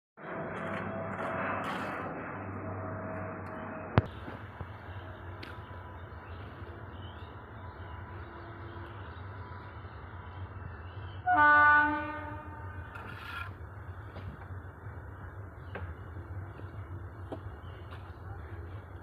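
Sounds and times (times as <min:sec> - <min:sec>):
train horn blast: 0:11.2 - 0:13.1.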